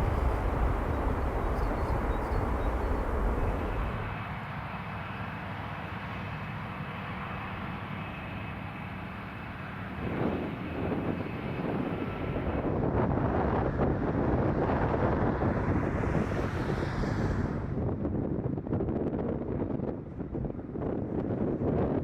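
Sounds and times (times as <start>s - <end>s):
jet engines rumbling: 0.0s - 4.2s
wind buffeting microphone: 0.0s - 4.2s, 10.0s - 22.0s
high engine whine: 0.0s - 4.4s.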